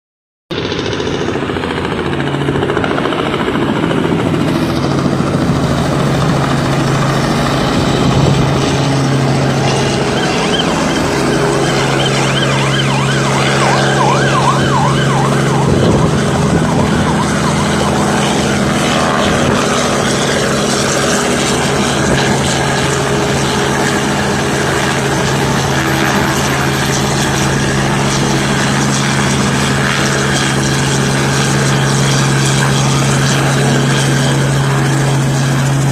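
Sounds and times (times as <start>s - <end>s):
helicopter engine and rotor: 0.5s - 35.9s
wavering higher tone: 7.9s - 20.6s.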